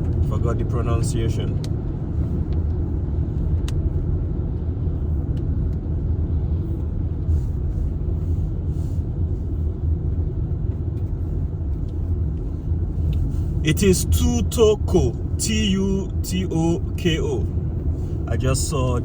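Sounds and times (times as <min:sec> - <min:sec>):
car engine and tyre noise: 0:00.0 - 0:19.0.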